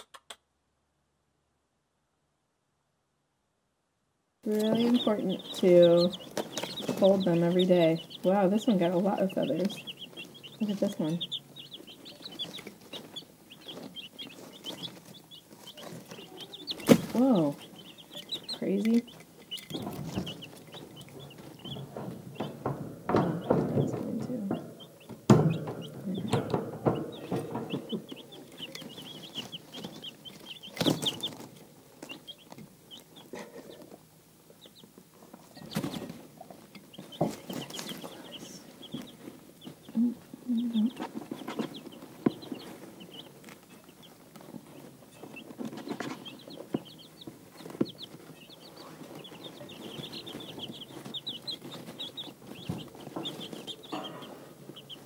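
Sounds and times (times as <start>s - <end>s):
chicks peeping: 4.4s - 55.0s
sharp knocks: 19.6s - 31.6s.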